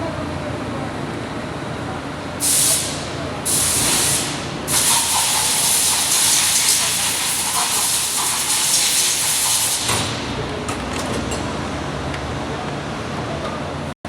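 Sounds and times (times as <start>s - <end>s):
loud hiss: 2.4s - 10.2s.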